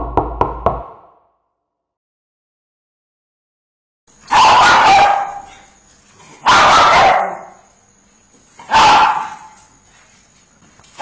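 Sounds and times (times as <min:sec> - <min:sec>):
dog barking: 0:04.3 - 0:05.8, 0:06.4 - 0:07.7, 0:08.6 - 0:09.6.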